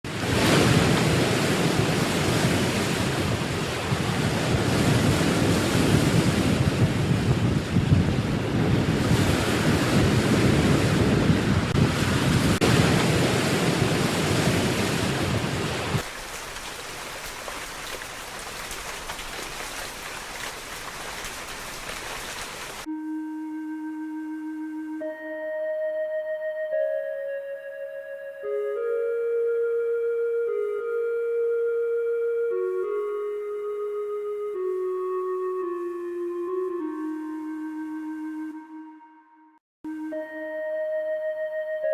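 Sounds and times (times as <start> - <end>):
wind rushing over microphone: 0.1 - 16.0
sea waves washing: 0.1 - 23.2.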